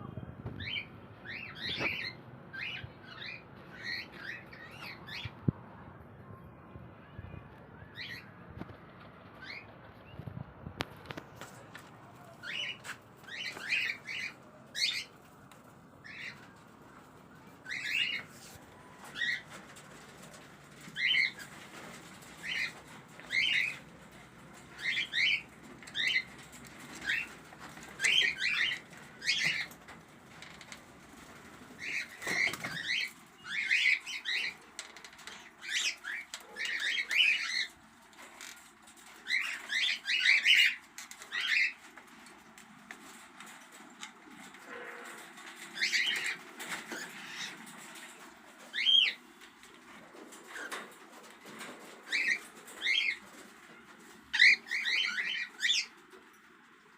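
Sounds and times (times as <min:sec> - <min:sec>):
cockatiels chirping: 0:17.7 - 0:19.5, 0:24.7 - 0:29.7, 0:31.8 - 0:34.6, 0:35.2 - 0:37.7, 0:39.1 - 0:41.8, 0:45.8 - 0:47.6, 0:48.7 - 0:49.2, 0:52.1 - 0:53.2, 0:54.3 - 0:55.9.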